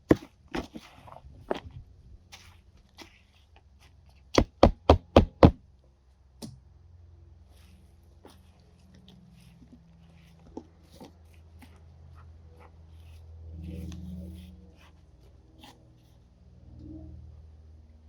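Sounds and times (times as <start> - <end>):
hard knocks: 4.4 - 5.6.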